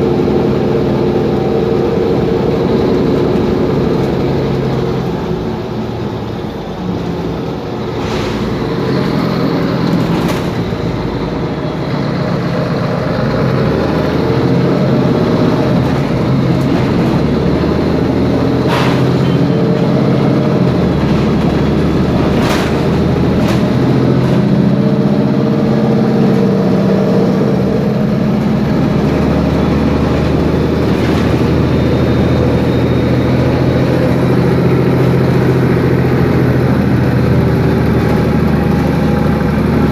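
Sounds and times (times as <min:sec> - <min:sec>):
diesel bus engine running: 0:00.0 - 0:39.9
rattling knocks: 0:15.7 - 0:25.0.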